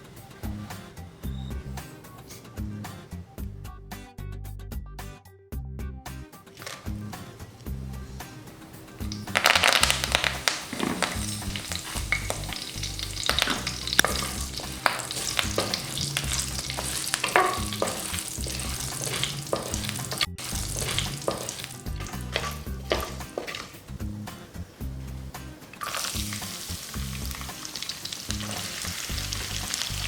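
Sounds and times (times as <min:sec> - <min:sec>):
food sizzling in hot oil: 0:07.6 - 0:30.0
spoon scraping a pan: 0:09.1 - 0:23.9.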